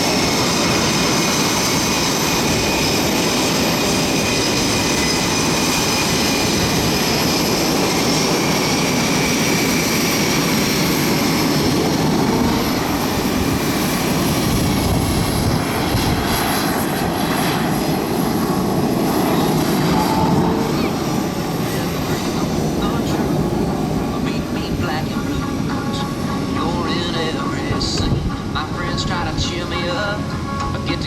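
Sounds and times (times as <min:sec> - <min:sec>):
jet engines whining while taxiing: 0:00.0 - 0:31.0.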